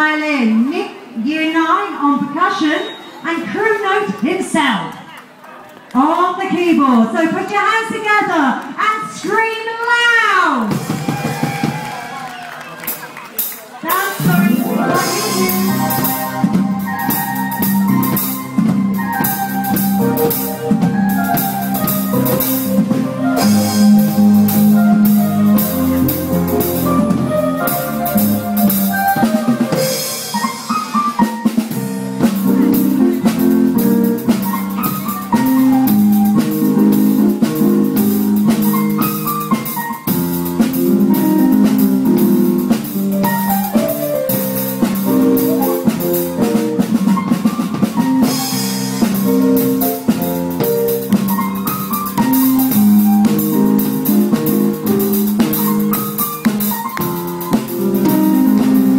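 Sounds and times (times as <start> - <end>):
drum kit beat: 10.6 - 58.9
keyboard: 12.9 - 58.9
violin with sliding notes: 14.2 - 17.8.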